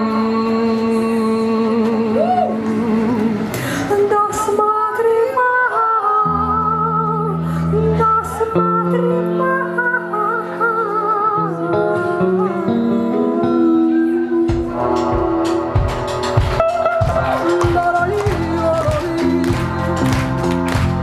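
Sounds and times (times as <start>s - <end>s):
live rock band music: 14.4s - 21.0s
deep bass notes: 14.5s - 21.0s.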